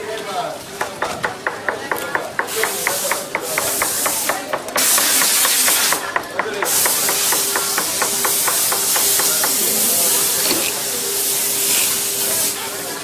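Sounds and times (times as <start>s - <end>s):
hissing spray bursts: 2.4s - 12.8s.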